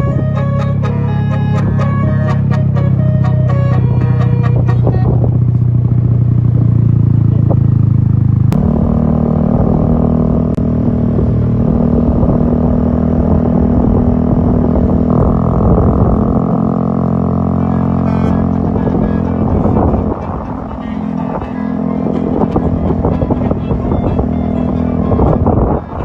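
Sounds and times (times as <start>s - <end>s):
bus horn melody: 0.0s - 5.6s, 17.5s - 26.0s
bus engine drone: 0.0s - 26.0s.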